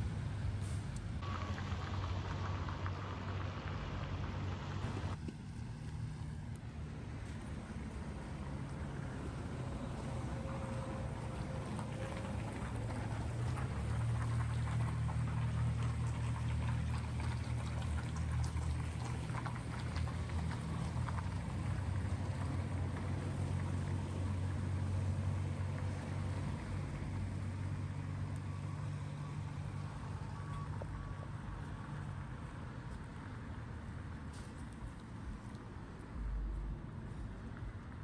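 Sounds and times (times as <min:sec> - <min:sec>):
engine humming: 0:00.0 - 0:38.0
water dripping: 0:11.3 - 0:22.4.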